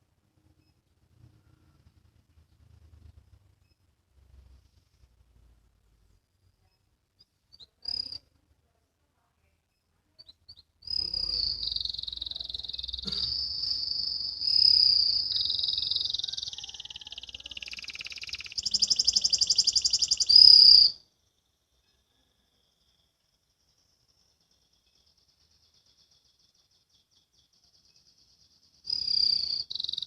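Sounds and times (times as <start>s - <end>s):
canary singing: 7.5s - 8.3s, 10.2s - 21.0s, 24.8s - 30.0s.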